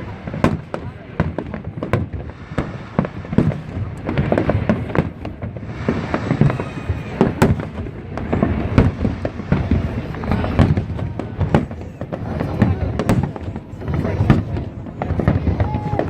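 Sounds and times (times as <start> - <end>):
fireworks bangs and shell bursts: 0.0 - 16.0.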